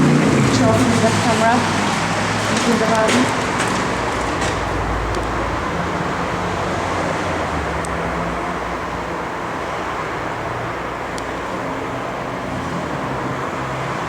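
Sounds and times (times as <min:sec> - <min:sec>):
low engine rumble: 0:00.0 - 0:09.1.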